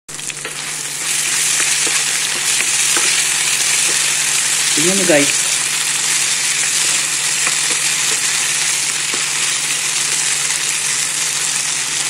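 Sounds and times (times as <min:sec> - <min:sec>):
potatoes sizzling in oil: 0:00.1 - 0:12.0.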